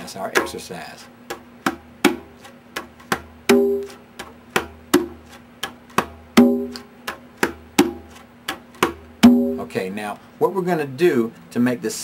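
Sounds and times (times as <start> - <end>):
conga drum strokes: 1.7 - 9.8.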